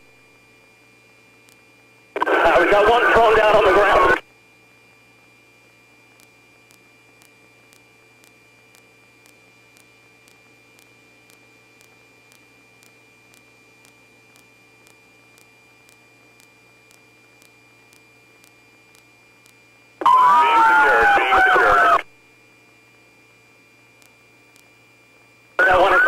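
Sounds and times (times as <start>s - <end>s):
electrical hum: 0.0s - 26.0s
soft ticks: 1.4s - 1.6s, 6.2s - 19.6s, 24.0s - 24.7s.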